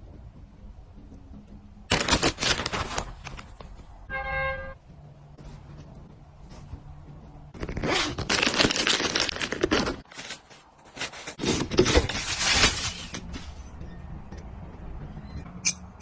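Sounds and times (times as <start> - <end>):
packaging ripping and rustling: 1.9 - 3.6, 7.6 - 13.5.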